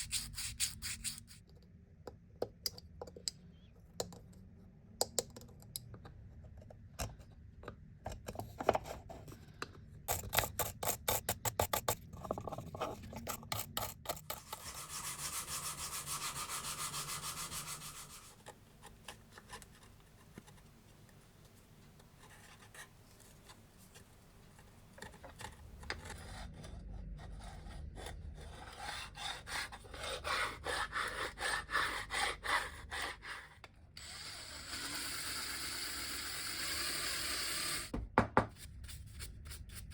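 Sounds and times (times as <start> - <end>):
file rasping on metal: 13.0 - 18.4.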